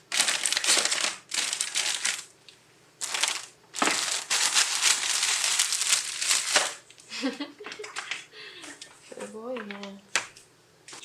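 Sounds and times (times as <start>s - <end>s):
crinkling and rustling: 0.0s - 2.3s, 3.0s - 7.0s.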